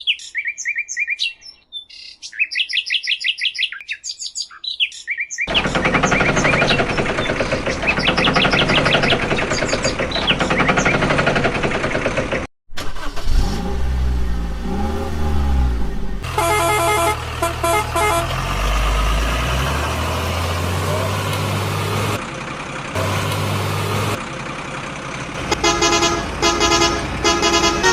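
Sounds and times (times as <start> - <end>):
birds chirping: 0.0 - 11.5, 14.2 - 22.2
engine pitch rising and falling: 5.5 - 24.4
loud steady vehicle noise: 5.5 - 27.9
low engine rumble: 5.5 - 27.9.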